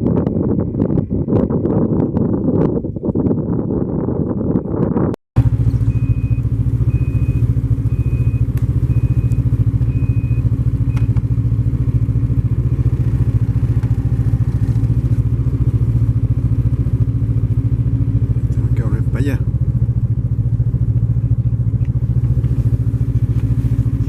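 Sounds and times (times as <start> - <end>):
vehicle engine running: 0.0 - 24.0
high warning beep: 5.8 - 11.2.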